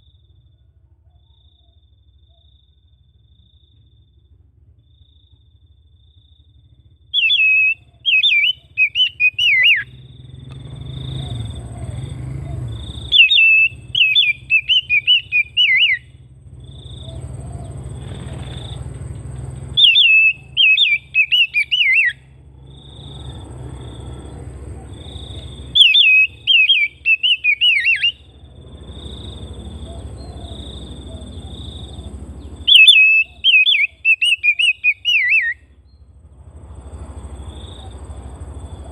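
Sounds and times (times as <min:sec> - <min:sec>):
bird whistling song: 0:07.1 - 0:18.9, 0:19.7 - 0:36.1.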